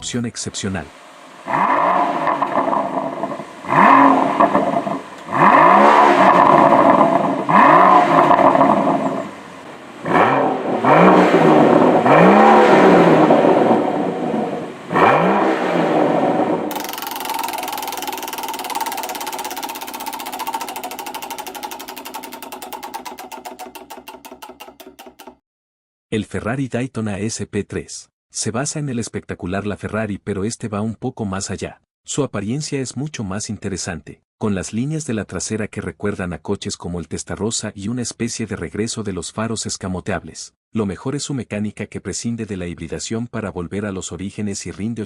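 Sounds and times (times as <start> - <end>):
car engine revving: 10.0 - 13.9
fast even ticking: 16.7 - 25.4.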